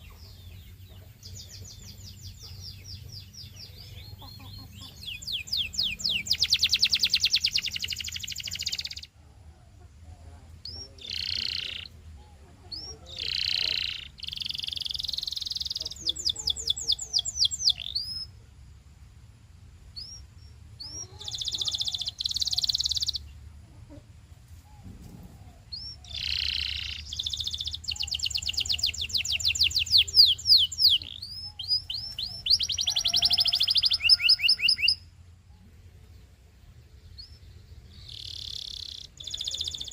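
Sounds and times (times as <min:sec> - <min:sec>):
canary singing trills: 0:00.0 - 0:18.4, 0:19.9 - 0:24.0, 0:24.6 - 0:39.9
faint low hum: 0:00.0 - 0:34.4, 0:35.0 - 0:39.9.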